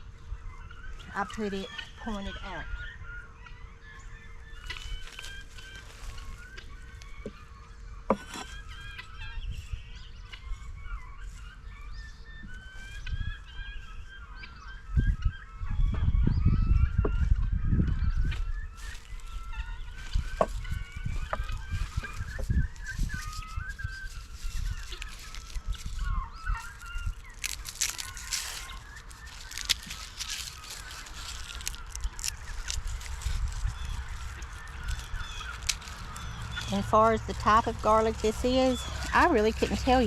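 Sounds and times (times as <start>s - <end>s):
guinea fowl calling: 0.2s - 40.0s
heavy low rumble: 26.7s - 40.0s.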